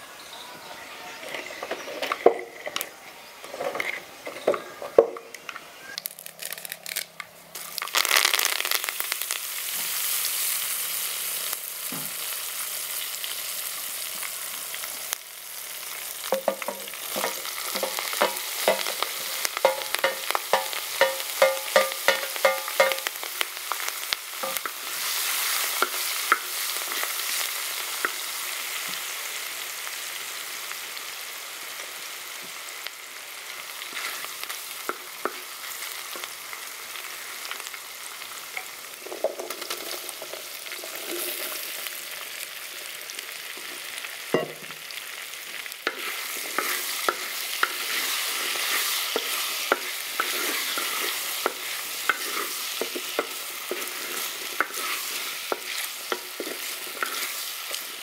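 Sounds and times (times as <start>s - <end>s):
oil sizzling in a pot: 7.4s - 58.0s
wooden spatula scraping a pot: 45.9s - 57.5s.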